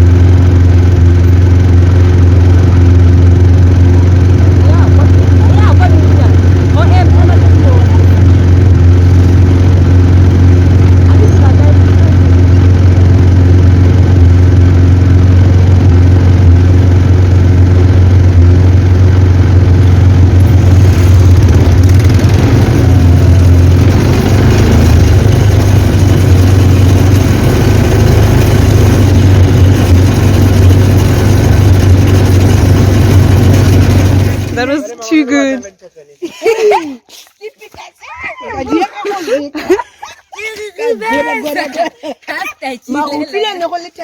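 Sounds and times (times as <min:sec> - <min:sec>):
quad bike engine droning: 0:00.0 - 0:35.1
rushing noise: 0:15.9 - 0:34.6.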